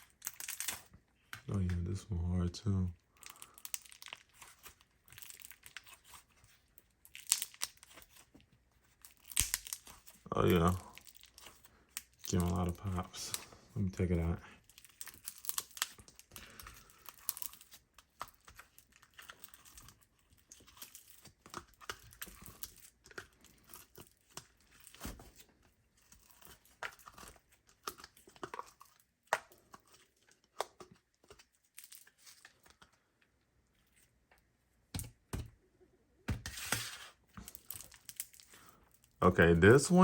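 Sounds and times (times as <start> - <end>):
foam slime popping and crackling: 0.0 - 0.9, 6.8 - 8.2, 9.0 - 13.4, 14.0 - 25.2.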